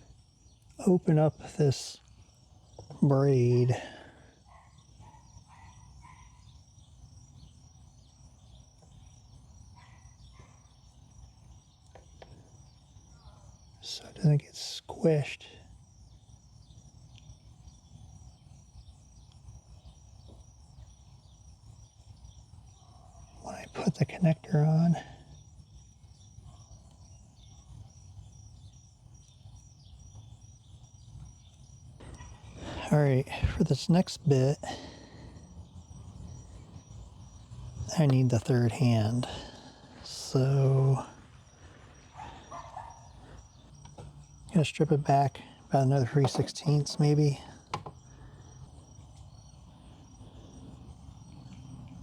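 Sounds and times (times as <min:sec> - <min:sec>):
cricket chirping: 0:00.0 - 0:52.0
faint high whine: 0:13.1 - 0:52.0.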